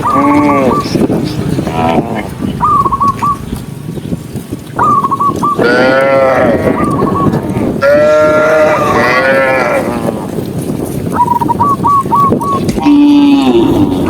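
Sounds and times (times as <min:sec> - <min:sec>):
bird whistling: 0:00.0 - 0:01.0, 0:02.6 - 0:03.6, 0:04.8 - 0:05.7, 0:06.7 - 0:07.4, 0:11.1 - 0:12.7
cattle mooing: 0:00.0 - 0:02.4, 0:05.6 - 0:10.4, 0:12.7 - 0:14.0.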